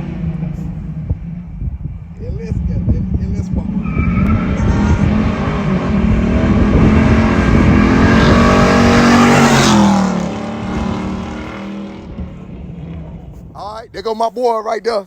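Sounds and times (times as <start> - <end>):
car engine accelerating past: 3.5 - 13.5.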